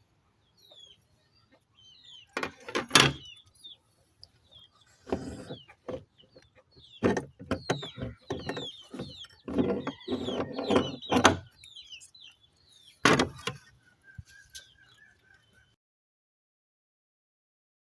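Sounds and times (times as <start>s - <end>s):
meat grinder crunching and squeaking: 7.0s - 12.1s.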